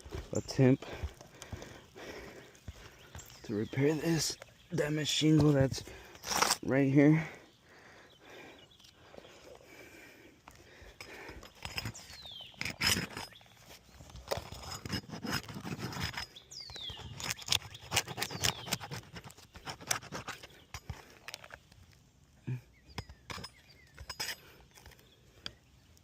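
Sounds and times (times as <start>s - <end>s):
scraping and knocking on shingles: 0.0s - 6.7s, 10.7s - 21.8s.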